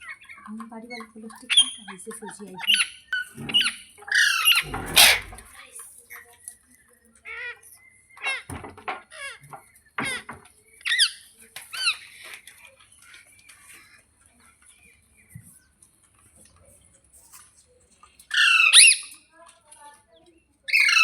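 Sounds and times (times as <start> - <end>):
parrot squawking: 2.6 - 5.5, 18.3 - 19.1, 20.7 - 21.0.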